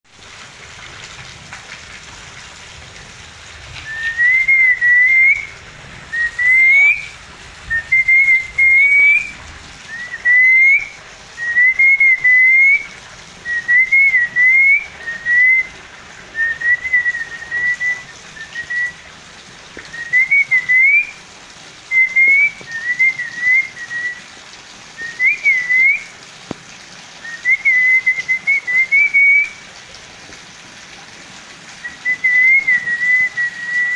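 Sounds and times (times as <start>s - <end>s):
parrot whistling: 3.9s - 5.5s, 6.2s - 7.1s, 7.7s - 12.8s, 13.5s - 15.7s, 16.4s - 19.0s, 21.9s - 24.2s.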